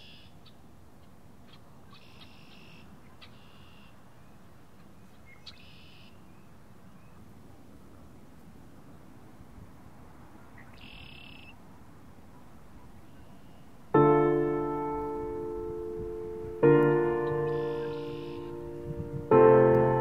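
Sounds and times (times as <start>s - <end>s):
faint outdoor ambience: 0.0s - 20.0s
short high bird chirp: 5.2s - 6.2s, 17.2s - 18.6s
soft piano chords: 13.6s - 20.0s.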